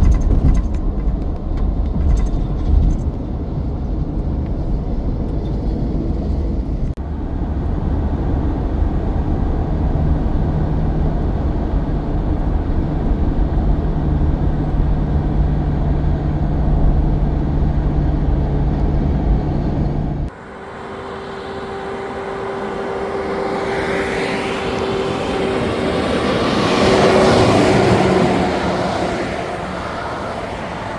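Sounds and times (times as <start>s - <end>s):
truck diesel engine rumbling: 10.0s - 30.9s
vehicle passing close: 11.0s - 30.9s.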